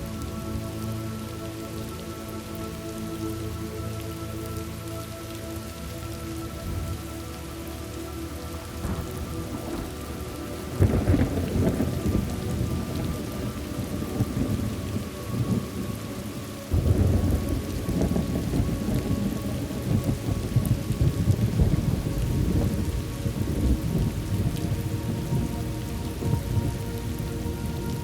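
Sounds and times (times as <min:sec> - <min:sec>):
steady rain: 0:00.0 - 0:28.0
thunder rumbles: 0:08.8 - 0:28.0.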